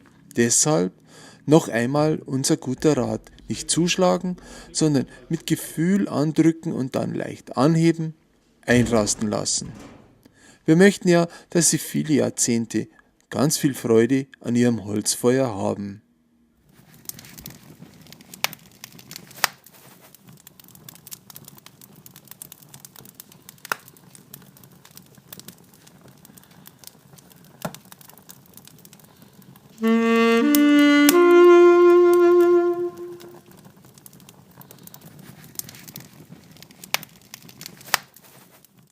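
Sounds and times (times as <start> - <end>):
wood fire crackling: 0.0 - 13.6, 16.5 - 38.9
reedy wind instrument melody: 29.8 - 33.6.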